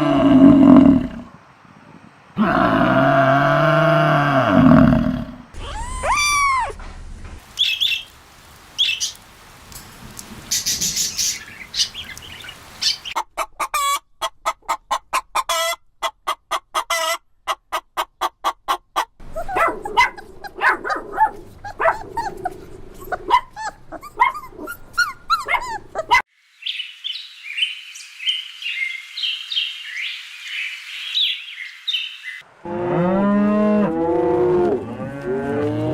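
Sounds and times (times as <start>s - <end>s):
birdlike chirps and calls: 7.6s - 8.2s, 8.8s - 9.2s, 10.4s - 13.2s, 19.3s - 32.4s.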